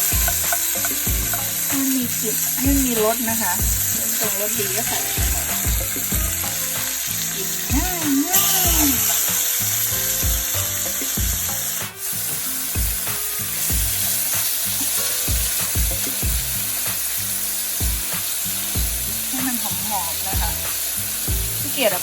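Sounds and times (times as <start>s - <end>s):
food sizzling in a pan: 0.0s - 22.0s.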